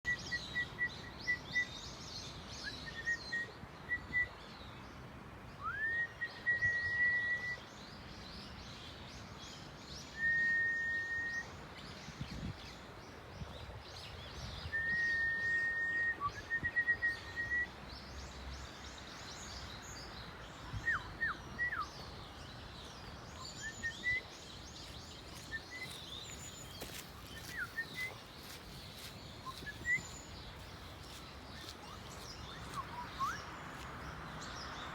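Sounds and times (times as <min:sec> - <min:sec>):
steady outdoor hiss: 0:00.1 - 0:34.9
birds chirping and twittering: 0:16.4 - 0:34.9
bird whistled notes: 0:31.6 - 0:33.4.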